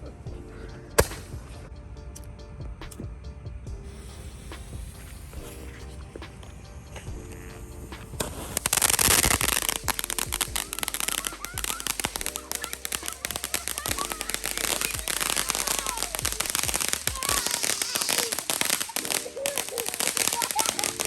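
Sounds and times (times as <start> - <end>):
firework burst: 1.0 - 1.4, 3.9 - 6.4, 8.1 - 21.0
rapid crackle of firework pops: 1.0 - 1.6, 4.0 - 7.2, 7.9 - 21.0.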